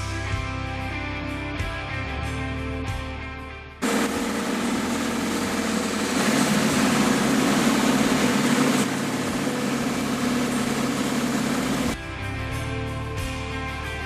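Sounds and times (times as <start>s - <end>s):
vehicle engine running: 3.8s - 12.1s.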